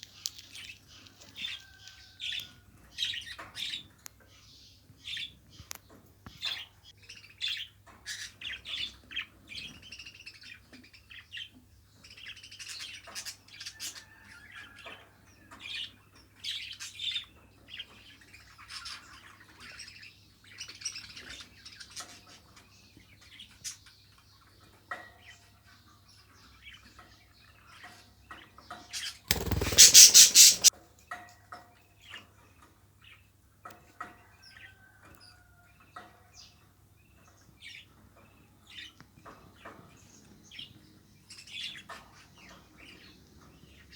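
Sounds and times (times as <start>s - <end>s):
budgerigars chattering and chirping: 29.3s - 30.7s.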